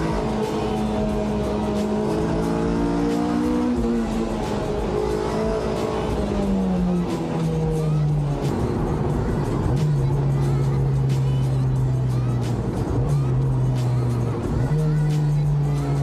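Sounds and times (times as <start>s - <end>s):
background music: 0.0s - 16.0s
car engine driving: 0.0s - 16.0s.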